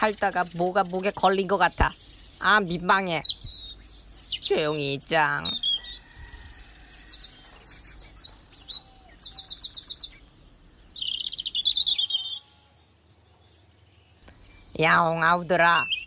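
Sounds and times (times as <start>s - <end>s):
bird warbling trill: 0.0s - 12.7s
songbirds chirping: 0.0s - 16.0s.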